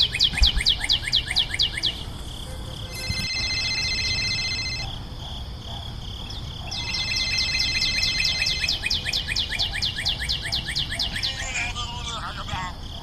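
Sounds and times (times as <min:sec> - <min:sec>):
rapid trill of falling chirps: 0:02.9 - 0:05.0, 0:06.6 - 0:13.0.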